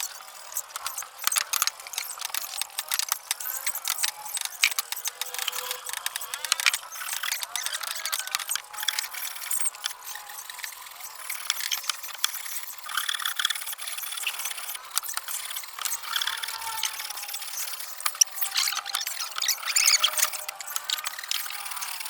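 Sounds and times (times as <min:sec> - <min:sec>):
hand tools clicking on wood: 0:00.0 - 0:22.0.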